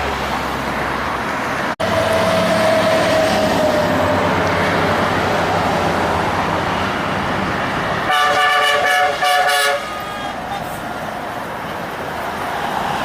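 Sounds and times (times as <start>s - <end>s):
heavy truck passing: 0.0s - 13.0s
truck horn: 8.0s - 10.8s.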